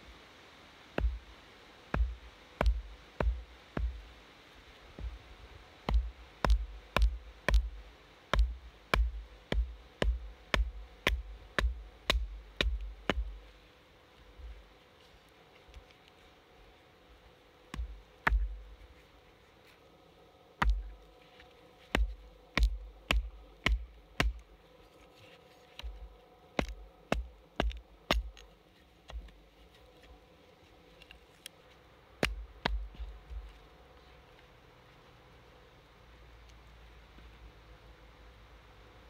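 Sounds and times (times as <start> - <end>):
mallet striking wooden log: 1.0 - 1.2, 2.0 - 4.0, 5.9 - 13.4, 20.6 - 20.8, 22.0 - 24.4, 26.6 - 28.4.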